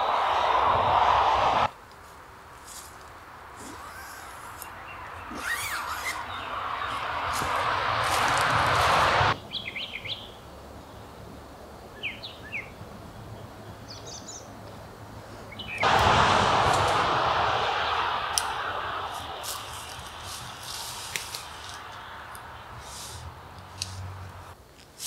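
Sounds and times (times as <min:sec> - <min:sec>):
rushing noise: 0:00.0 - 0:01.7, 0:05.0 - 0:09.4, 0:15.8 - 0:24.6
small birds chirping: 0:03.6 - 0:07.6, 0:09.4 - 0:11.3, 0:15.4 - 0:15.9.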